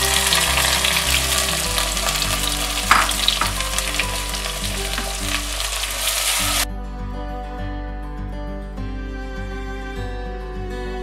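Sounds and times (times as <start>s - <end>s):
shallots sizzling in hot oil: 0.0s - 6.7s.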